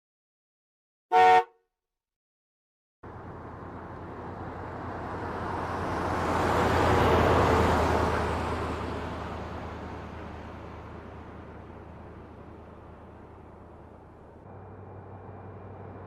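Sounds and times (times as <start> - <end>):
road vehicle passing by: 3.0 - 16.0.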